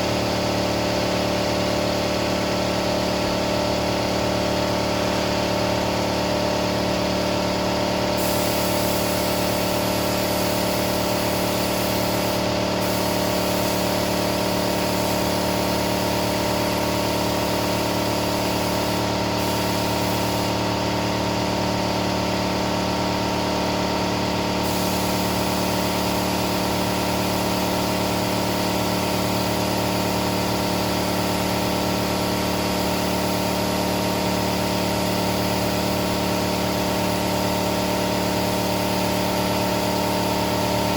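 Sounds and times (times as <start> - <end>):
steady machine hum: 1.8 - 40.9
spray gun hissing: 8.1 - 21.0, 24.6 - 40.9.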